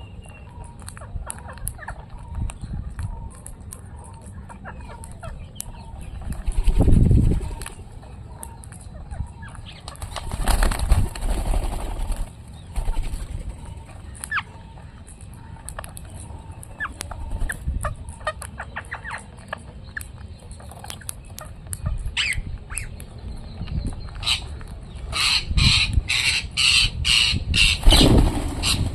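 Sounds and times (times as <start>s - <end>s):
parrots chirping and clicking: 0.0s - 27.8s
parrots squawking harshly: 25.1s - 28.0s, 28.6s - 28.8s.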